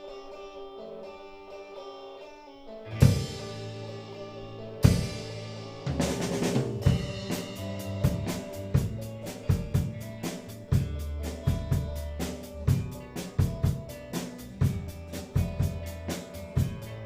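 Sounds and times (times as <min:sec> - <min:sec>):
rock band playing: 0:00.0 - 0:17.0.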